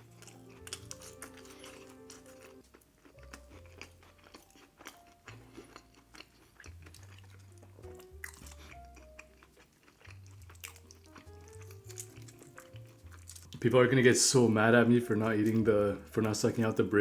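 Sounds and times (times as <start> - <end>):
person chewing food: 0.0 - 13.6
quiet background music: 0.0 - 17.0.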